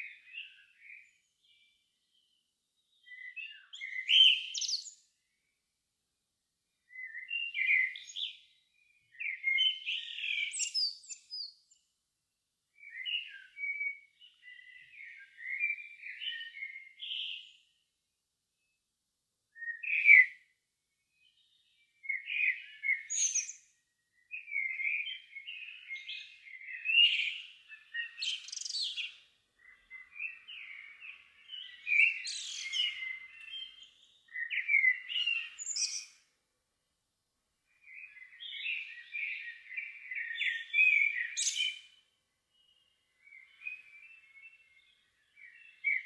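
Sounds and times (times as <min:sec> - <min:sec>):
songbird warbling: 0:25.6 - 0:36.1.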